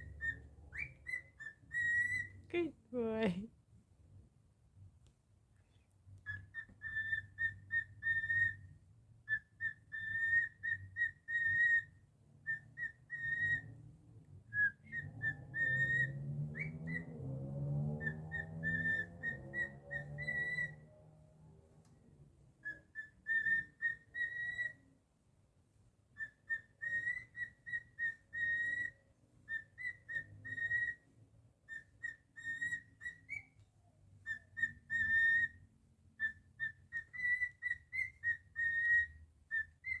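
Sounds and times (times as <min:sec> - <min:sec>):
cockatiel whistling: 0:00.0 - 0:02.4, 0:06.2 - 0:13.7, 0:14.5 - 0:17.2, 0:18.0 - 0:20.8, 0:22.6 - 0:24.9, 0:26.1 - 0:33.6, 0:34.2 - 0:40.0.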